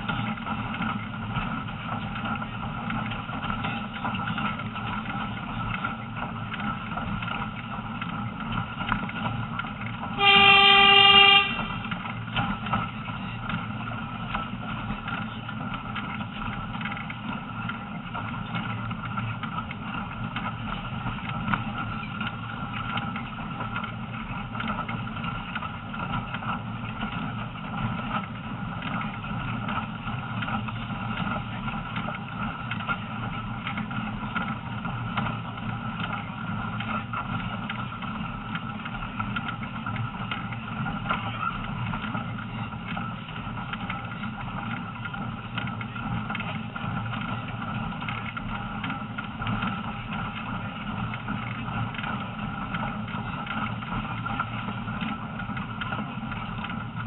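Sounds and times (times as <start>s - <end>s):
train rumbling on track: 0.0s - 57.0s
locomotive whistle blast: 10.2s - 11.9s.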